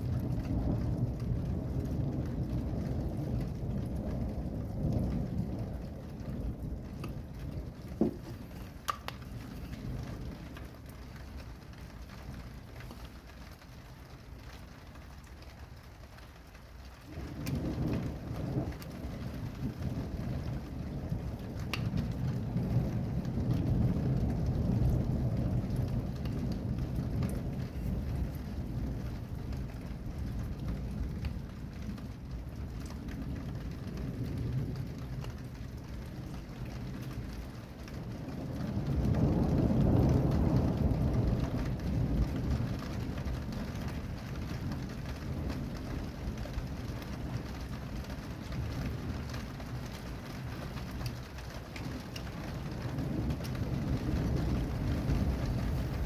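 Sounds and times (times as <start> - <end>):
rain falling: 0.0 - 56.0
rolling thunder: 0.0 - 56.0.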